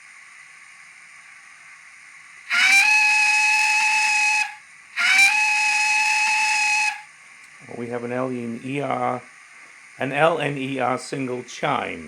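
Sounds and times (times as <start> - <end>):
soft steam hiss: 0.0 - 12.0
steam locomotive whistle: 2.4 - 7.1.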